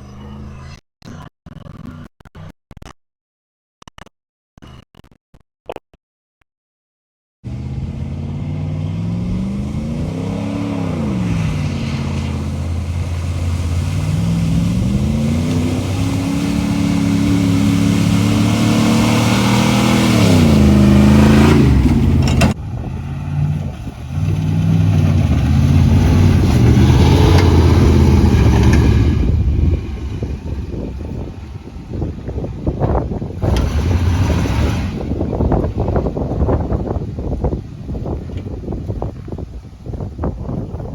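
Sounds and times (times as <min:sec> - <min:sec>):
truck engine revving: 0:07.4 - 0:39.0.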